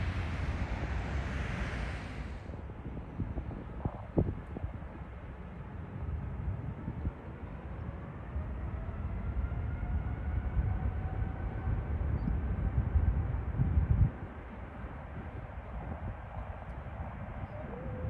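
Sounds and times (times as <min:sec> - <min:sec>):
jet airliner passing by: 0:00.0 - 0:02.9.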